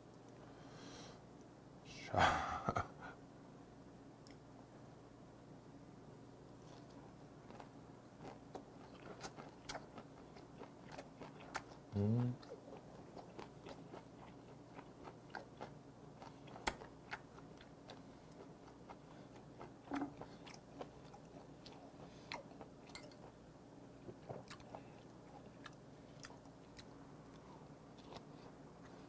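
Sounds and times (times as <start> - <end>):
person chewing with mouth clicks: 6.6 - 23.4, 24.0 - 29.0.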